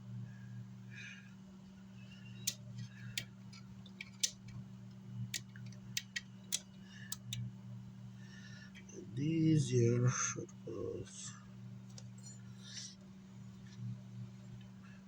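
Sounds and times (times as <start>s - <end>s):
steady low hum: 0.0s - 15.0s
sharp clicks and ticks: 2.5s - 4.6s, 5.3s - 7.4s.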